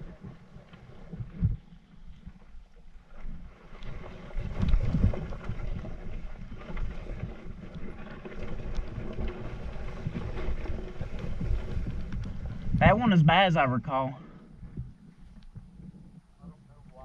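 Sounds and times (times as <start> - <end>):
wind buffeting microphone: 3.9 - 17.0.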